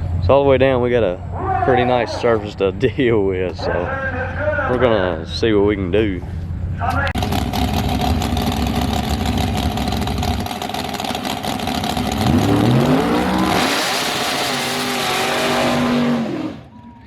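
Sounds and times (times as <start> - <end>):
race car engine accelerating: 7.2 - 16.8.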